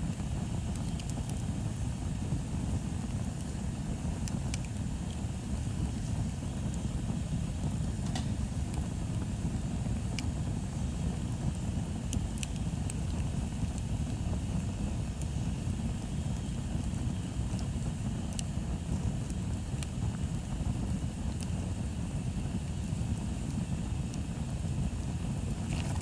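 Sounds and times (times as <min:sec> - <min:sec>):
bonfire rumble: 0:00.0 - 0:26.0
wood crackling: 0:25.5 - 0:26.0.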